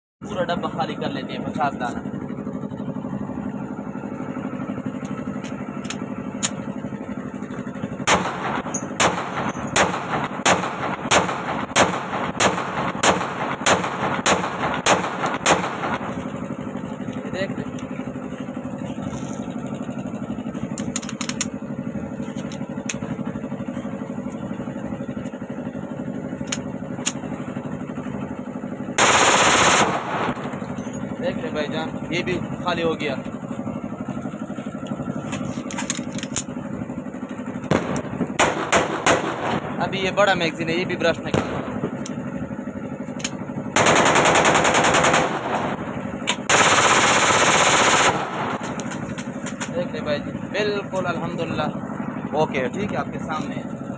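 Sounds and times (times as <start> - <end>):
small engine idling: 0.2 - 53.9
pistol firing automatic bursts: 8.0 - 16.2, 29.0 - 30.4, 37.7 - 39.8, 43.7 - 49.5.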